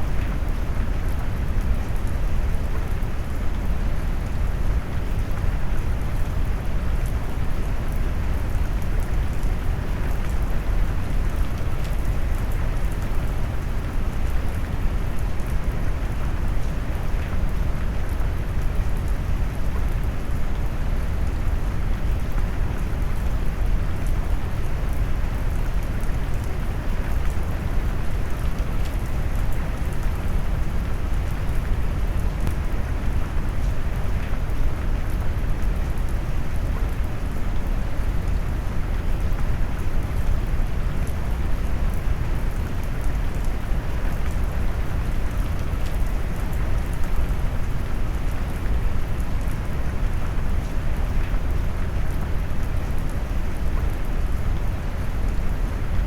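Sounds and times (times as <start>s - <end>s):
steady rain: 0.0s - 56.0s
raindrop ticks: 32.4s - 32.8s.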